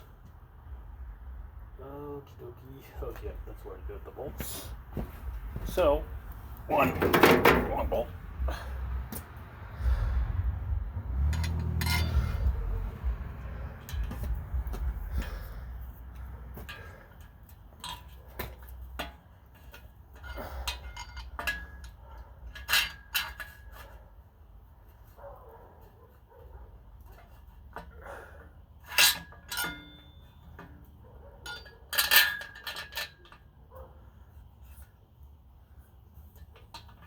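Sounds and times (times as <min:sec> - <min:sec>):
metal parts clinking: 0:11.3 - 0:12.6, 0:28.9 - 0:30.7, 0:31.4 - 0:33.5.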